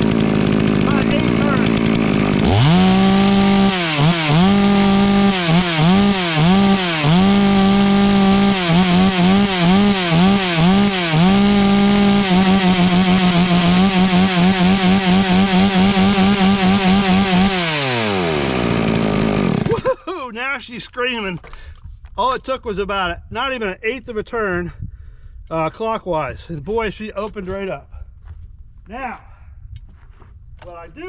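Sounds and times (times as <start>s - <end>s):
chainsaw revving: 0.0s - 19.9s.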